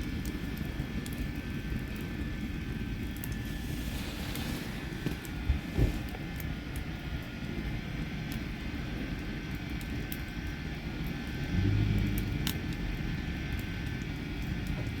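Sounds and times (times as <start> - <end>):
campfire crackling: 0.0 - 15.0
low hum: 10.8 - 14.6
low rumble: 11.2 - 14.8.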